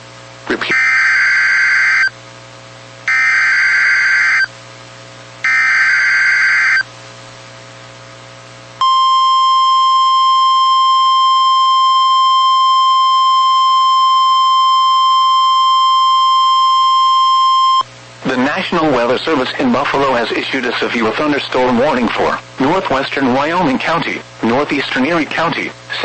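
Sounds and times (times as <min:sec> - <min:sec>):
steady warning alarm tone: 0:00.7 - 0:02.1, 0:03.1 - 0:04.5, 0:05.4 - 0:06.8, 0:08.8 - 0:17.8.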